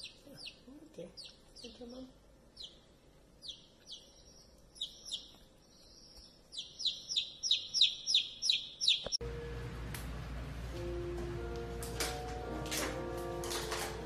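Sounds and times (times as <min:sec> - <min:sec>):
baby chick peeping: 0:00.0 - 0:09.2.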